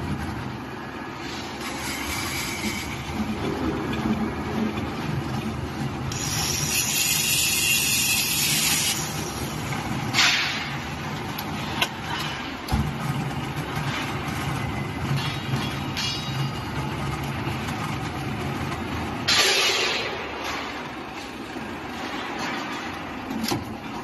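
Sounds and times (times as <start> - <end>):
sharp clank: 19.3 - 20.7.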